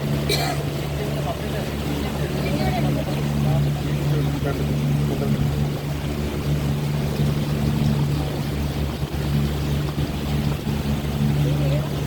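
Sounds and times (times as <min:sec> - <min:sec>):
motorboat engine humming: 0:00.0 - 0:12.0
water rushing: 0:00.0 - 0:12.0
wind: 0:00.0 - 0:12.0.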